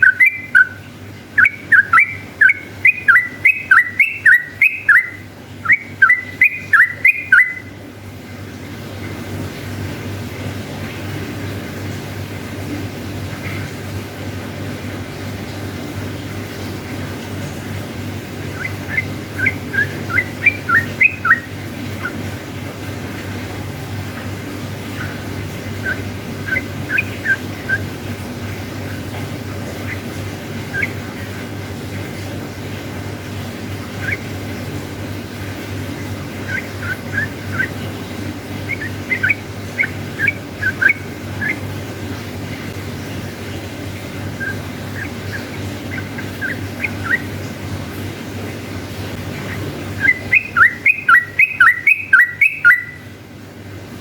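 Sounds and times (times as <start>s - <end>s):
bird singing upward-sweeping notes: 0.0s - 7.7s, 18.4s - 22.2s, 25.0s - 27.9s, 29.8s - 31.4s, 34.0s - 34.3s, 36.4s - 37.8s, 38.6s - 41.7s, 44.4s - 47.4s, 49.4s - 53.0s
steady low hum: 0.0s - 54.0s.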